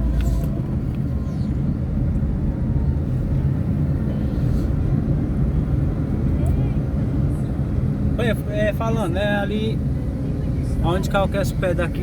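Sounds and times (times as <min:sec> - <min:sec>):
car engine: 0:00.0 - 0:12.0
road rumble: 0:00.0 - 0:12.0.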